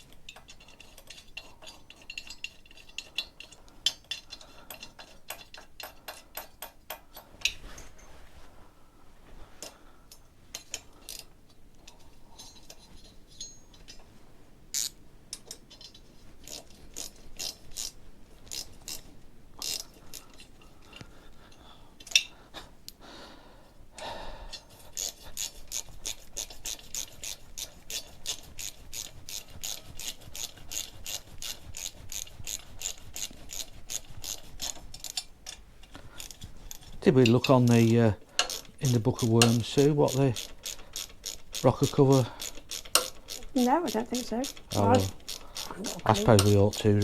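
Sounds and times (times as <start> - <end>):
socket ratchet clicking: 14.7 - 19.0, 19.6 - 21.0, 24.5 - 35.6, 38.4 - 47.0.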